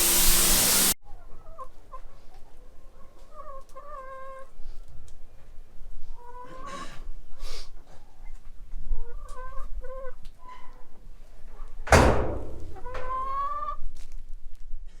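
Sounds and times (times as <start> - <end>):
loud sudden burst of noise: 0.0 - 1.0
chickens clucking: 1.1 - 5.0, 6.0 - 7.1, 7.8 - 11.8, 12.6 - 13.8.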